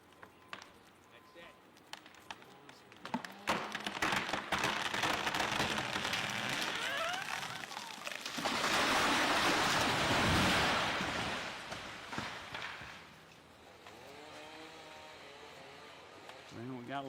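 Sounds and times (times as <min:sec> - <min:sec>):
wood cracking and creaking: 0:00.0 - 0:13.4
branches rushing through foliage: 0:02.0 - 0:15.4
tree crashing down: 0:03.0 - 0:13.2.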